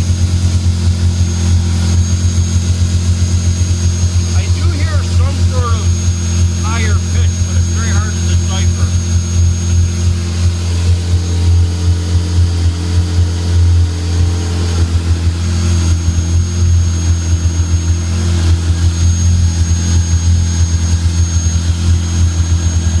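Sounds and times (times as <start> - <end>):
air pump whine: 0.0 - 23.0
car engine idling: 0.1 - 15.5.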